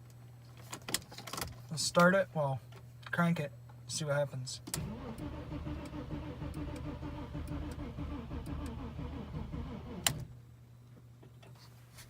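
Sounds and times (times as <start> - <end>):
starter motor cranking engine: 4.8 - 10.3.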